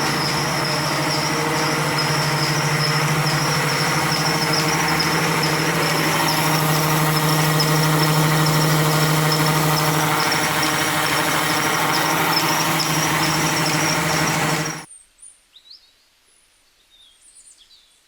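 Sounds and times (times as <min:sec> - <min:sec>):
small motor humming and whining: 0:00.0 - 0:14.9.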